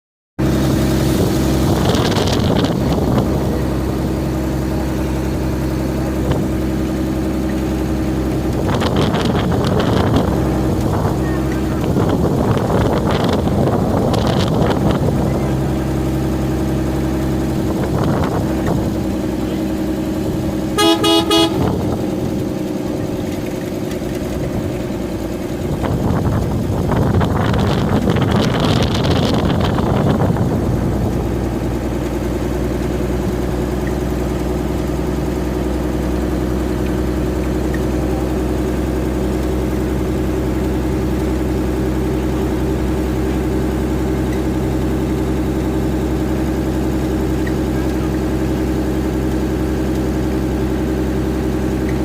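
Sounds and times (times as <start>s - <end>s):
vehicle engine humming: 0.4s - 52.0s
wind noise on microphone: 0.8s - 4.2s, 8.5s - 15.4s, 25.6s - 31.7s
vehicle horn blast: 20.7s - 22.4s.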